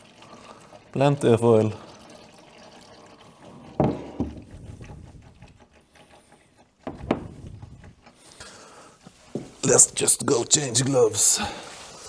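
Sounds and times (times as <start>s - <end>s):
oil draining into a pan: 0.0s - 9.6s
knocks: 6.8s - 7.8s.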